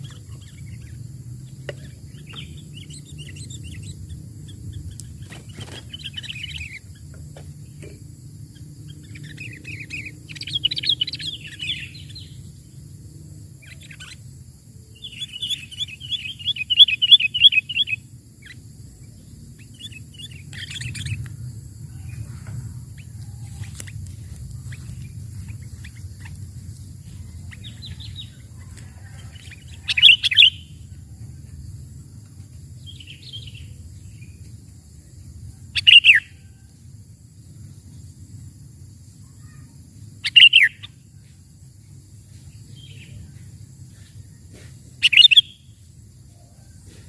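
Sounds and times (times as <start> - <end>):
bulbuls calling: 0.0 - 12.7, 13.5 - 30.9, 35.8 - 36.4, 40.2 - 41.0, 45.0 - 45.6
low steady rumble: 0.0 - 35.8.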